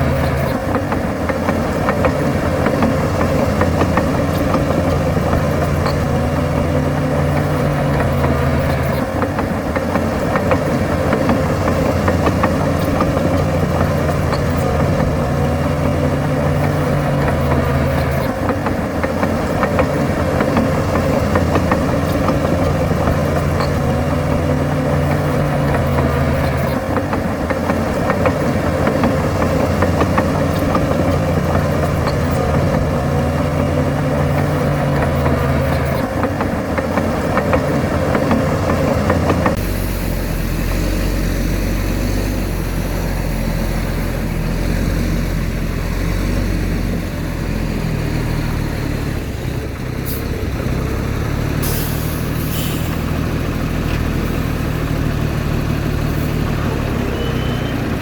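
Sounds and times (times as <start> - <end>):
heavy diesel engines running: 0.0 - 58.0.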